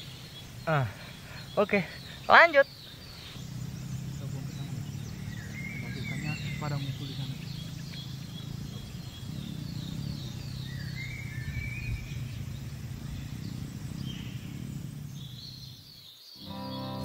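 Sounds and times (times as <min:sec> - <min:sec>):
bird chirping: 0:00.0 - 0:17.0
steady low rumble: 0:02.9 - 0:15.9
guitar music: 0:16.4 - 0:17.0.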